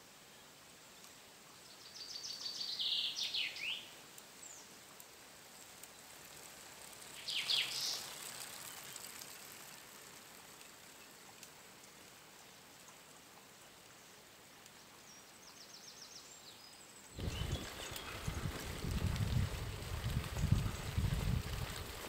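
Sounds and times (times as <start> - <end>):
outdoor background hiss: 0.0 - 22.0
birds chirping: 7.1 - 9.2, 15.1 - 21.2.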